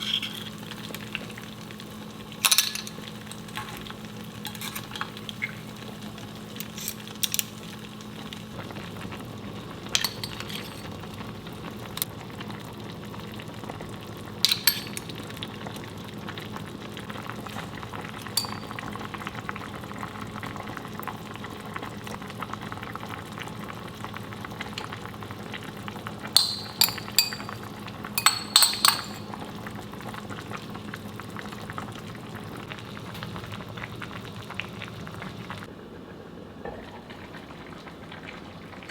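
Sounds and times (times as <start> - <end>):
metal utensil clinking on pot: 0.0 - 0.6, 2.4 - 5.4, 6.6 - 7.5, 9.9 - 11.0, 14.4 - 15.2, 18.2 - 18.9, 26.4 - 27.6, 28.2 - 29.3
stew sizzling in a pot: 0.0 - 35.8.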